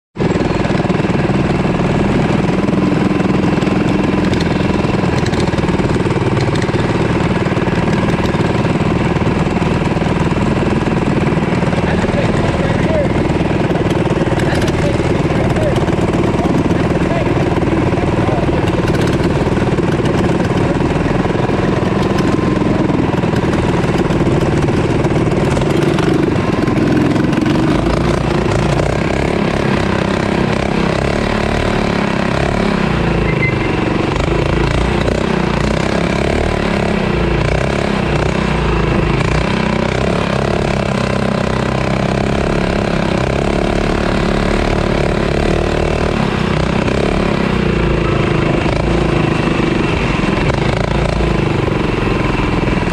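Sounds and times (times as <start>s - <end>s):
mini bike engine revving: 0.2s - 52.9s.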